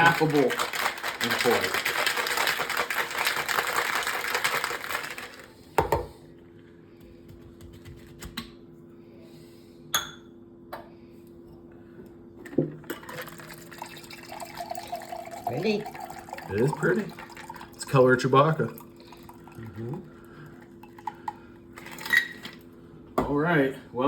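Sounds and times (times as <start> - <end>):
ice rattling in cocktail shaker: 0.0 - 5.5, 12.9 - 19.7, 21.8 - 22.5.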